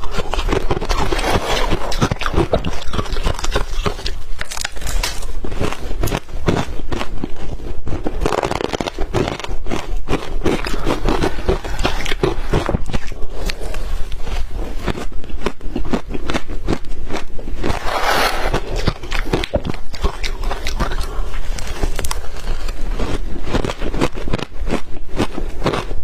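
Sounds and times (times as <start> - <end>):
shaved ice crunching: 17.6 - 19.5.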